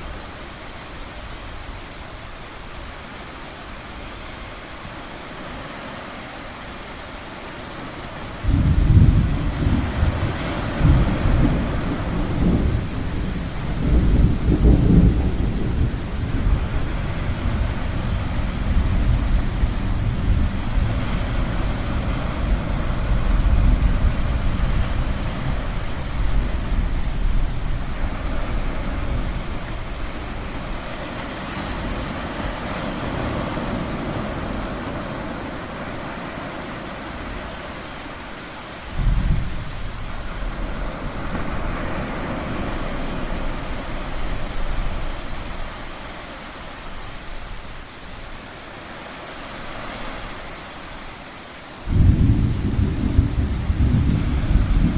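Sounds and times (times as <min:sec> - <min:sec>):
ocean surf: 0:00.0 - 0:54.9
rolling thunder: 0:08.4 - 0:30.9, 0:38.9 - 0:45.7, 0:51.9 - 0:54.9.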